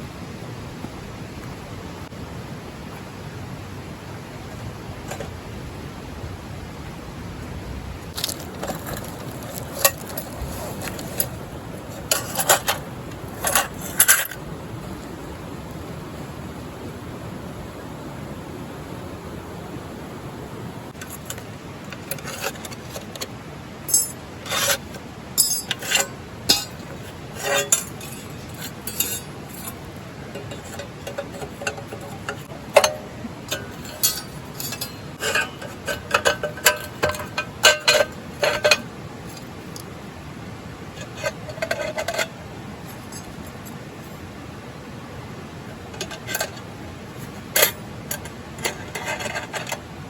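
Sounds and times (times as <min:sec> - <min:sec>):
metal cookware clinking and scraping: 0:23.9 - 0:38.8, 0:47.6 - 0:49.8.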